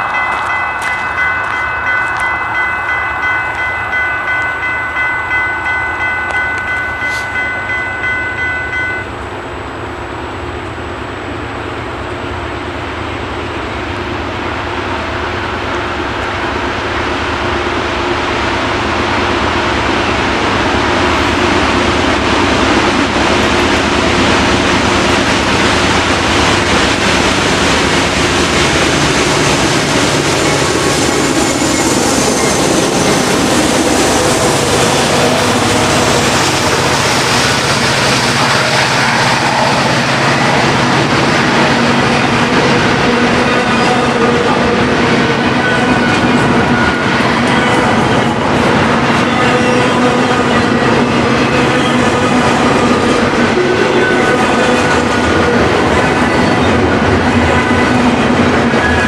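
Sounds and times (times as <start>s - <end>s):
freight train rumbling: 0.0s - 59.0s
pulsing high warning tone: 28.7s - 40.6s.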